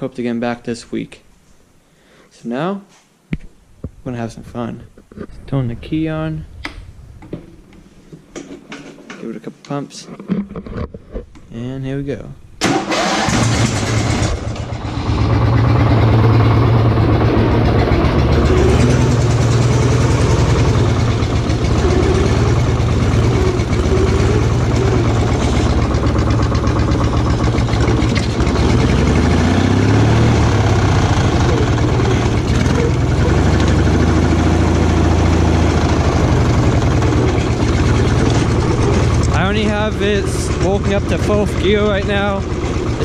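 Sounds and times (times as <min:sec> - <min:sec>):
lawn tractor engine revving: 0:12.6 - 0:43.0.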